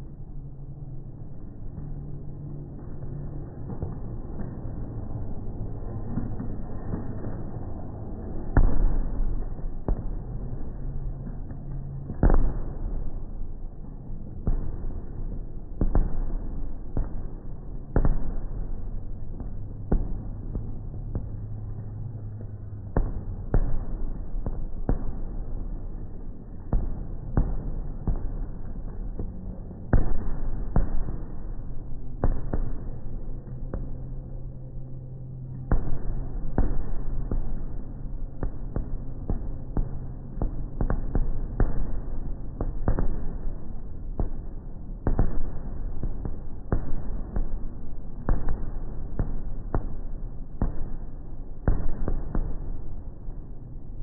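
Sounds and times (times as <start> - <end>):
steady low rumble: 0.0 - 54.0
fireworks bangs: 14.4 - 21.8.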